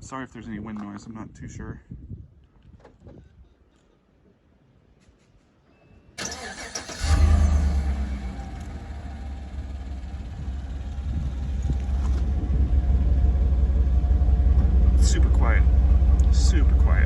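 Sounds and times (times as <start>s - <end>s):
starter motor cranking: 6.2s - 8.0s
engine idling quietly: 6.2s - 17.0s.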